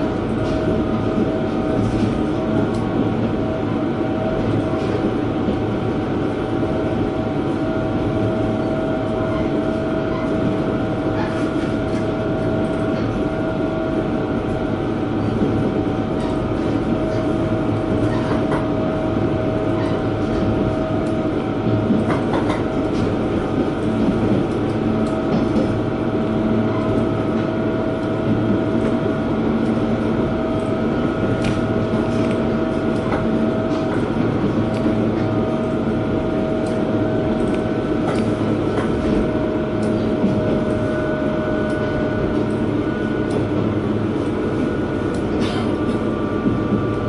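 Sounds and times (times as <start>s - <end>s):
railcar engine drone with whine: 0.0s - 47.0s.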